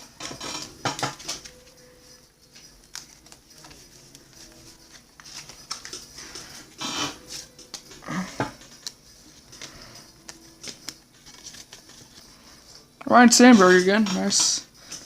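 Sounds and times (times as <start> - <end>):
trading cards flipped by hand: 2.5 - 6.1, 8.6 - 12.2.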